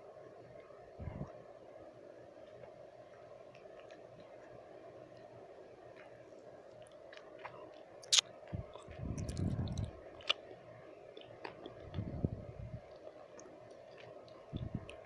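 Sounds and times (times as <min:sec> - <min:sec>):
low hum: 0:00.7 - 0:01.5, 0:08.4 - 0:10.3, 0:11.8 - 0:12.9, 0:14.4 - 0:15.0
tongue and lip clicks: 0:06.9 - 0:10.4, 0:13.4 - 0:15.0
wet mouth sounds: 0:08.0 - 0:10.4, 0:14.0 - 0:15.0.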